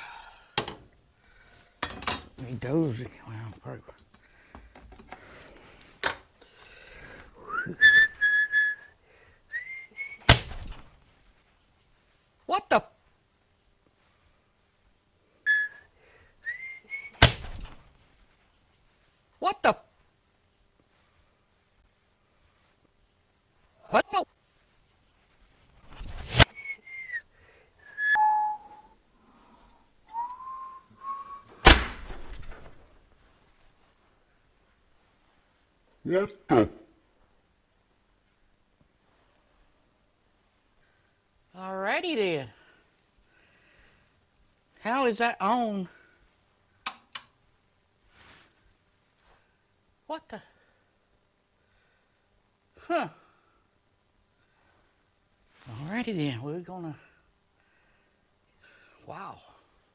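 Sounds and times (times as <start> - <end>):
man whistling: 7.4 - 10.3, 15.4 - 17.2, 26.5 - 29.0, 30.1 - 31.6
loud sharp bang: 31.6 - 32.5.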